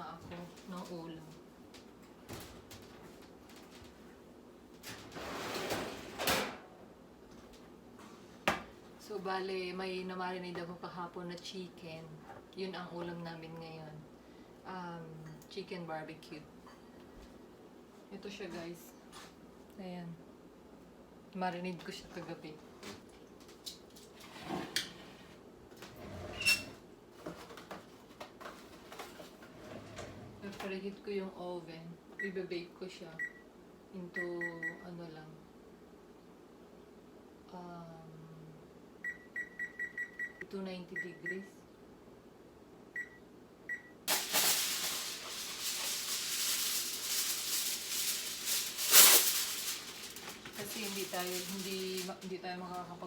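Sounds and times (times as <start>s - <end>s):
oven electronic beep: 33.2s - 33.4s, 34.2s - 34.9s, 39.0s - 41.5s, 43.0s - 44.0s
loud rustling handling noise: 44.1s - 53.0s.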